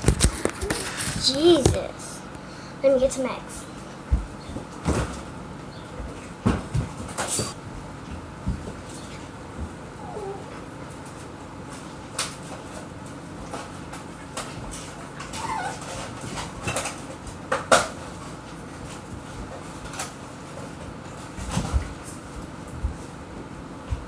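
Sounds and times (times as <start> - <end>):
dog whimpering: 9.9 - 10.6, 15.3 - 16.0.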